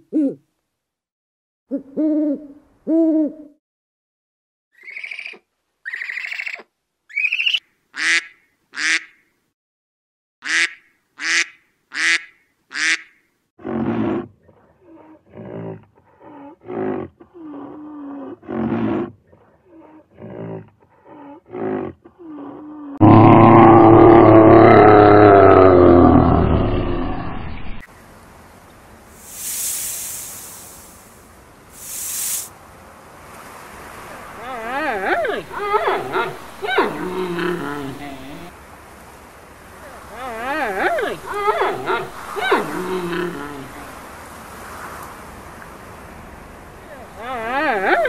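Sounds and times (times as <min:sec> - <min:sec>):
bear roaring: 0:13.6 - 0:27.2, 0:34.4 - 0:38.5, 0:39.8 - 0:44.0
short wavering animal calls: 0:40.0 - 0:43.9
owl hooting: 0:40.8 - 0:43.7.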